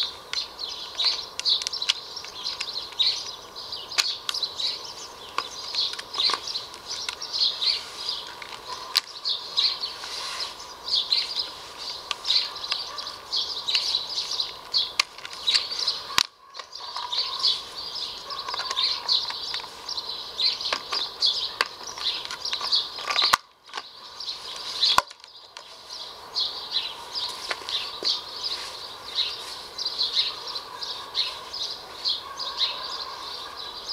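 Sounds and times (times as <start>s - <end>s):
small birds chirping: 0.0s - 33.9s
sharp clicks: 0.3s - 7.3s, 12.0s - 17.4s, 18.3s - 19.7s.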